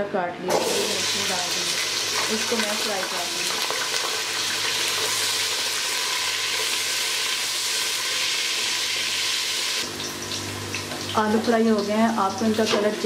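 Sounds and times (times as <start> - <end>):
potatoes sizzling in hot oil: 0.6 - 13.0.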